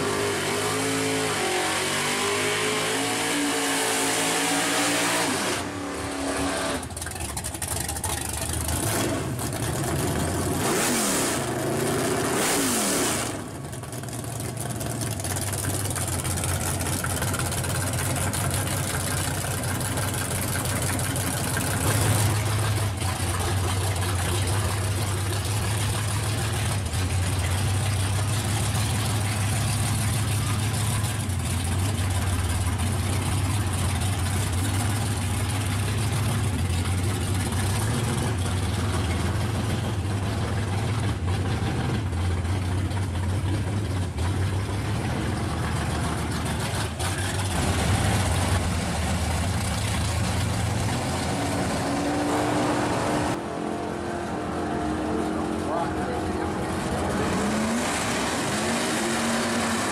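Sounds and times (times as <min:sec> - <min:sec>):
car engines idling: 0:06.8 - 0:12.4, 0:13.2 - 0:59.9.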